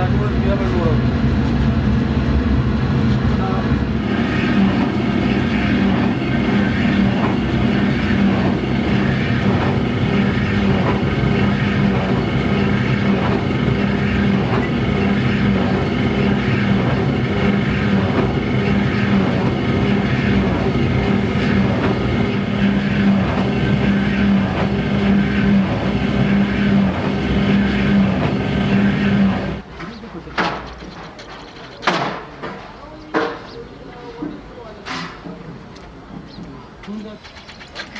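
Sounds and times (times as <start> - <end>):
machine humming: 0.0 - 29.6.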